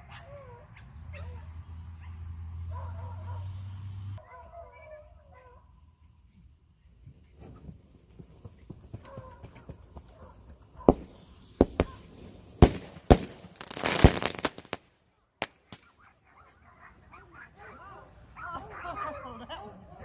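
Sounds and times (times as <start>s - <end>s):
fireworks crackling: 8.2s - 16.0s
firework bangs: 9.9s - 16.0s.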